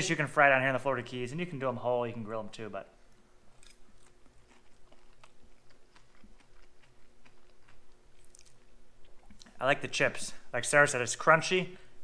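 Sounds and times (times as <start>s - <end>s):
chewing crunchy fried fish: 3.5s - 9.6s.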